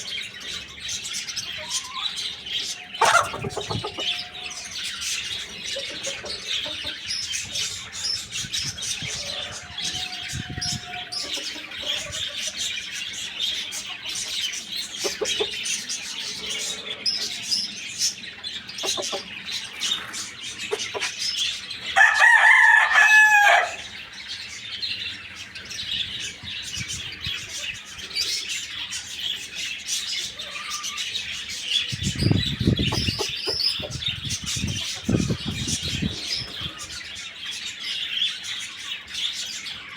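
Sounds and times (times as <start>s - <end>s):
small birds chirping: 0.0s - 39.9s
rooster crowing: 9.0s - 11.3s, 22.0s - 24.0s.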